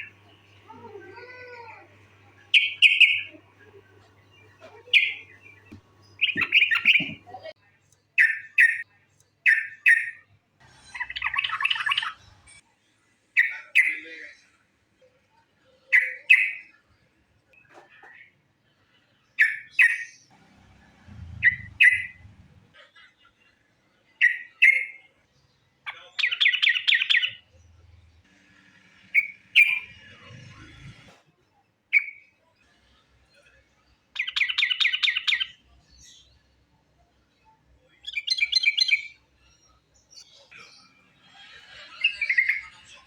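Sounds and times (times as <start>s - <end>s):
bird calling: 4.8s - 7.3s, 21.3s - 22.2s.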